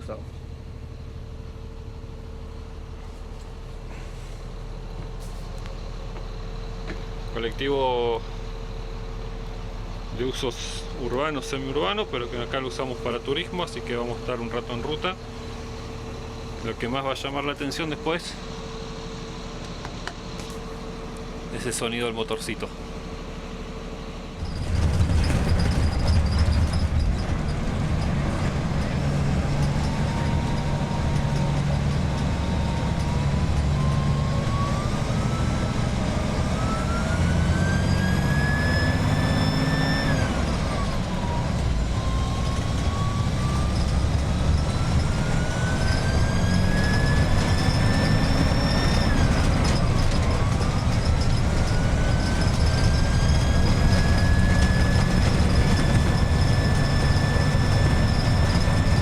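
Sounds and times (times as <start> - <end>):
bus engine pulling: 0.0 - 59.0
turbocharger whistle: 29.6 - 59.0.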